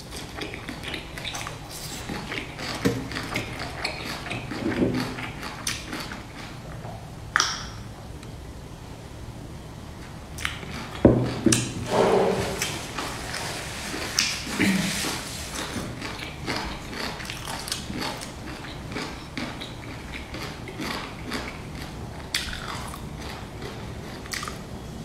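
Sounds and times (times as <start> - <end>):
wet chewing clicks and smacks: 0.1 - 6.6, 10.4 - 11.7, 16.0 - 24.7
loud thump: 11.9 - 12.7.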